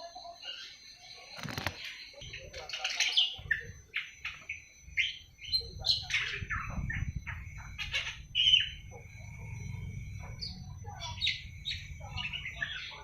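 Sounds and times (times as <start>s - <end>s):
young bird chirping and squawking: 5.0s - 8.8s.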